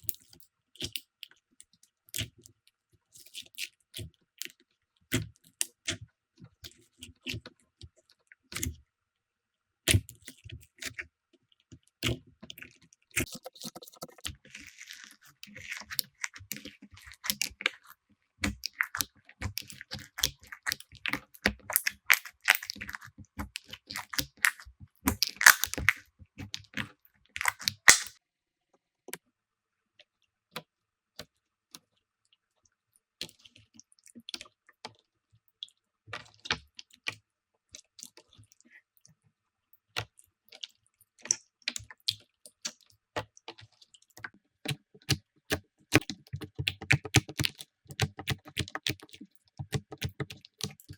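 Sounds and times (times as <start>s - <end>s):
slime crackling and popping: 18.4s - 28.2s, 45.9s - 50.9s.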